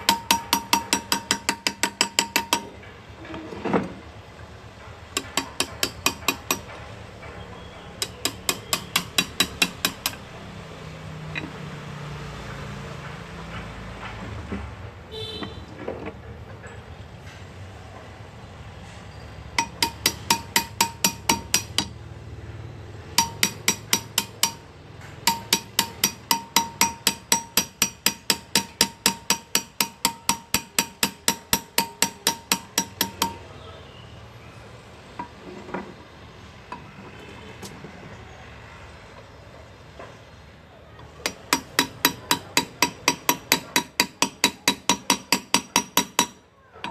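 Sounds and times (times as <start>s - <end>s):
hammer tapping chisel into metal: 0.0s - 2.8s, 5.1s - 7.4s, 8.0s - 10.3s, 11.3s - 11.6s, 19.6s - 22.0s, 23.1s - 33.6s, 41.0s - 46.9s.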